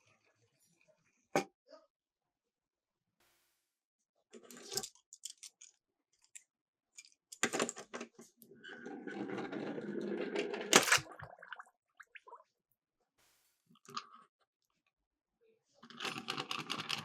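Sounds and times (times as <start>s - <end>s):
toy cars clattering: 4.5s - 6.4s
toy cars rolling down slope: 8.8s - 11.1s.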